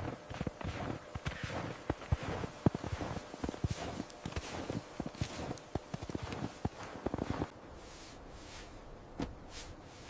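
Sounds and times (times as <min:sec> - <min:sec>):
footsteps: 0:00.0 - 0:07.5.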